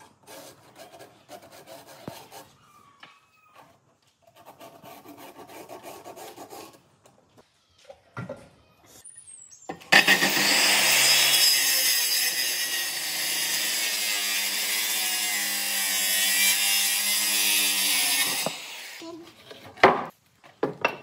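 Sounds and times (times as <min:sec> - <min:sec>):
power saw cutting wood: 0:09.9 - 0:19.0.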